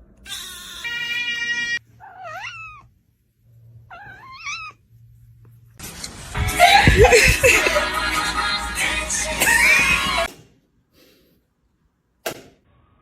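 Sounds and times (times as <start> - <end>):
cat meowing: 0.2 - 2.9, 3.9 - 4.8.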